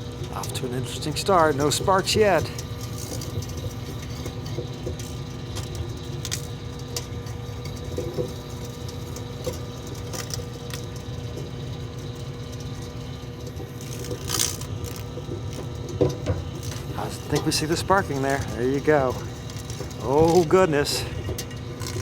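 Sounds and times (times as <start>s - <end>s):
microwave oven humming: 0.0s - 22.0s.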